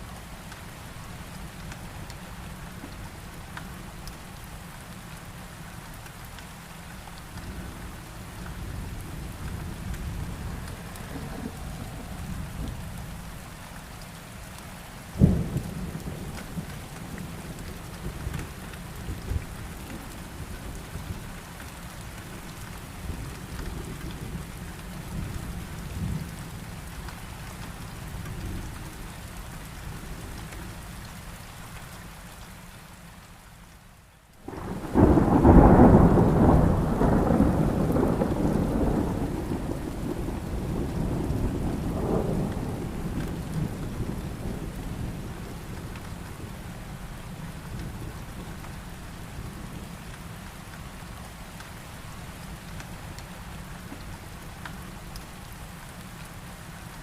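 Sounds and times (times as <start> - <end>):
heavy rain: 0.0 - 57.0
thunder rumbling: 8.7 - 13.4, 34.4 - 46.8
sharp thunderclap: 34.5 - 44.3.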